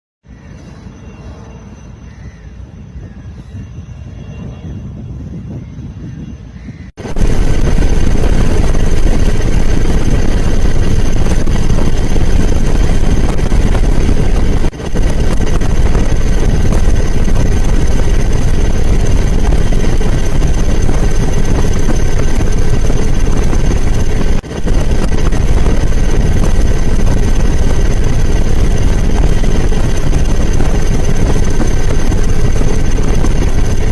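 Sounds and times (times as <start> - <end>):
high whine: 7.0 - 33.9
loud engine noise: 7.0 - 33.9.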